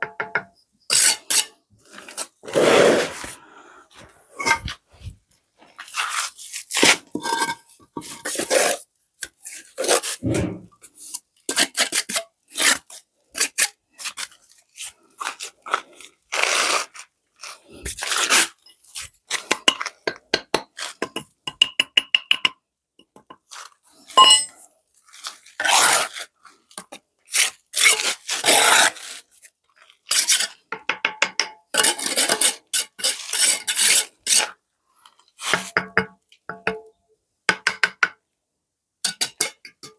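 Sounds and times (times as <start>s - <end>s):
hard objects knocking and clinking: 0.0s - 0.5s, 19.6s - 23.4s, 24.2s - 24.5s.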